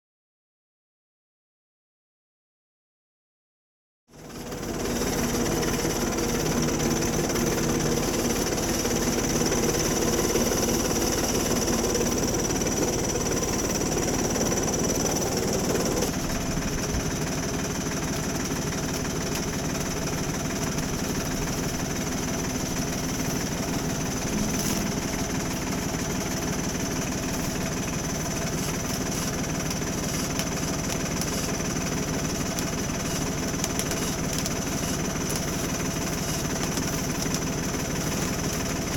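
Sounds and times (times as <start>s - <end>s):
farm machinery engine running: 4.1s - 38.9s
high whine: 23.2s - 26.2s.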